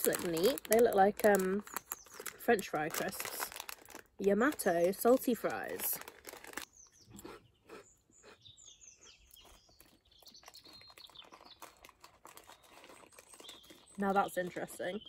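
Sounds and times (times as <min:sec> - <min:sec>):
crisps being chewed: 0:00.0 - 0:08.4, 0:09.0 - 0:15.0
small birds chirping faintly: 0:06.5 - 0:15.0.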